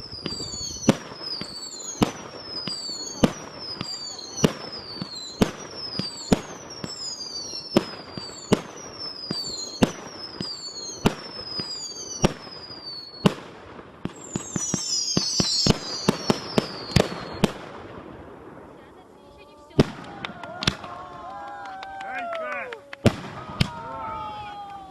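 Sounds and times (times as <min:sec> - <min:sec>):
falling firework whistles: 0:00.0 - 0:17.7
firework bangs: 0:00.0 - 0:24.8.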